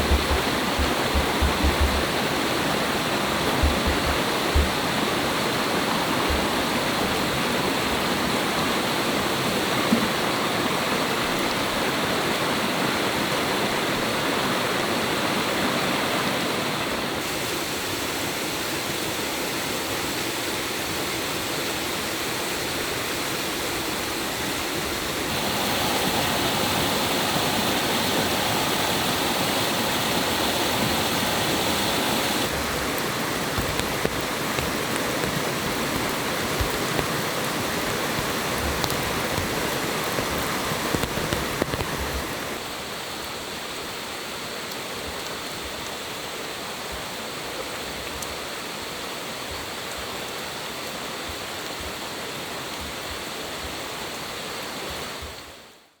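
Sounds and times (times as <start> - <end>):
faint knocks: 0.0 - 2.2, 3.4 - 5.0
stream water rushing: 0.0 - 55.7.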